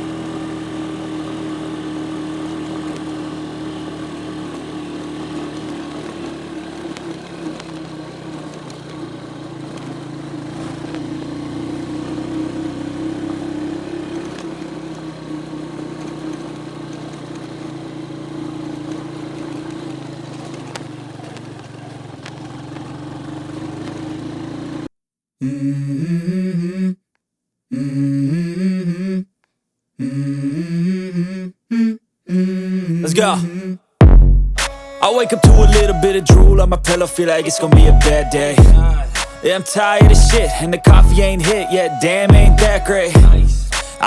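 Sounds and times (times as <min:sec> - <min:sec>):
vehicle engine driving on dirt road: 0:00.0 - 0:24.9, 0:34.0 - 0:44.0.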